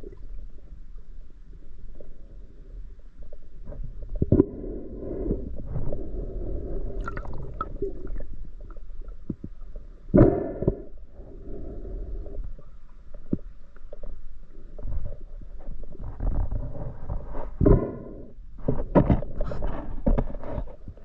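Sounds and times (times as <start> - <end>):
muffled underwater rumble: 0.0 - 21.0
underwater clicks and knocks: 13.1 - 14.2, 18.6 - 21.0.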